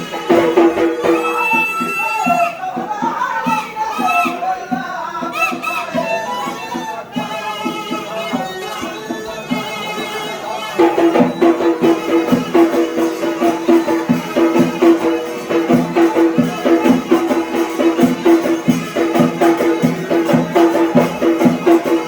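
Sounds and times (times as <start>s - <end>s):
drumming quick steady beat: 0.0s - 22.0s
reed pipe folk melody: 0.0s - 22.0s.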